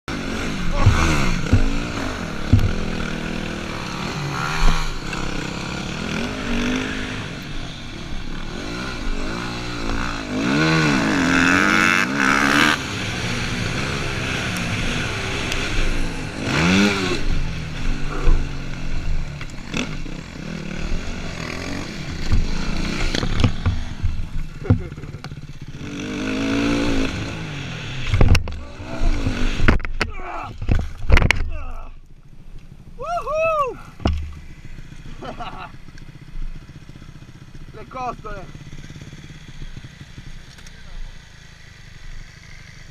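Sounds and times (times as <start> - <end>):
dirt bike engine revving: 0.1 - 30.0, 33.8 - 42.9
sharp thumps: 0.6 - 5.6, 22.1 - 25.6, 34.0 - 34.7.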